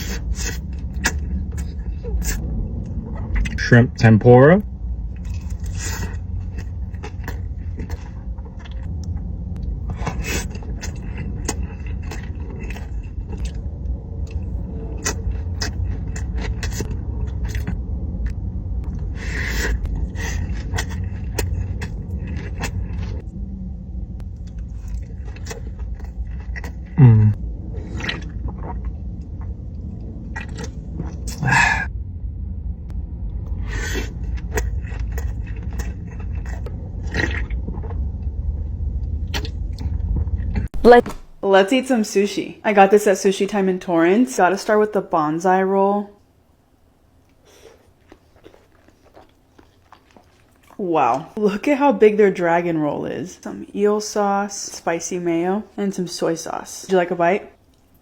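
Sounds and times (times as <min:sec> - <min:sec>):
food being chewed crunchily: 0:00.0 - 0:03.6, 0:05.0 - 0:23.2, 0:24.2 - 0:27.0, 0:27.8 - 0:31.5, 0:33.6 - 0:40.7, 0:47.2 - 0:51.4
steady low rumble: 0:00.0 - 0:53.8.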